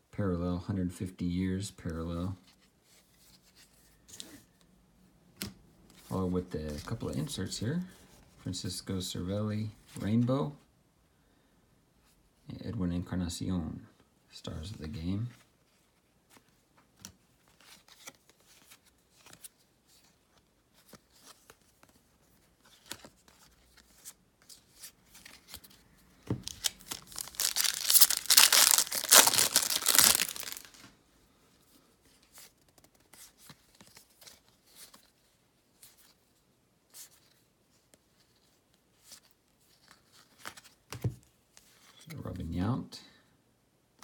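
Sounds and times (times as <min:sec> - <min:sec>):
cards clicking and rustling: 0:22.6 - 0:30.9
foil wrapper tearing: 0:26.4 - 0:30.8.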